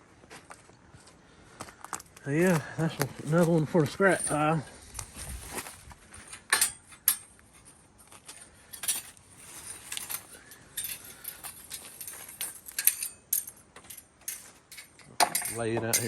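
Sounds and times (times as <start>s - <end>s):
steel band blade clinking: 6.5s - 7.3s, 9.9s - 16.0s.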